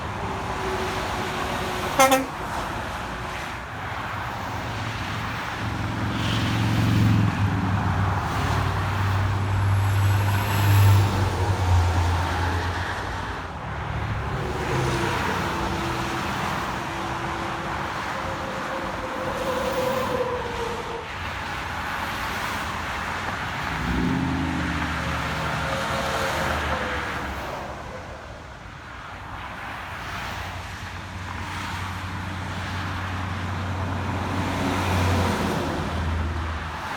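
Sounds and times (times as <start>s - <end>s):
road noise from passing vehicles: 0.0s - 36.9s
heavy engine passing: 23.6s - 27.5s.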